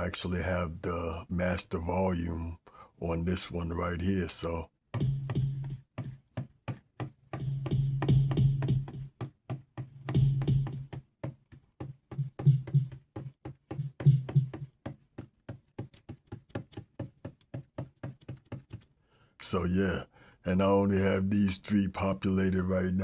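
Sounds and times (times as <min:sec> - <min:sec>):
programmed drum beat: 0:04.0 - 0:18.8.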